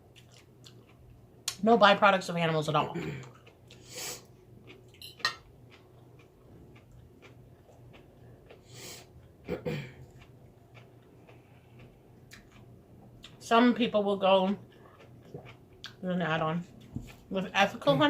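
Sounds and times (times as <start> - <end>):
cutlery clicking on dishes: 5.0 - 5.5.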